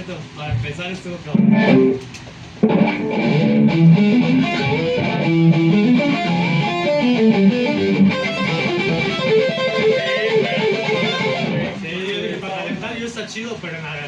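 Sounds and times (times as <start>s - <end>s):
electric guitar melody: 1.3s - 11.8s.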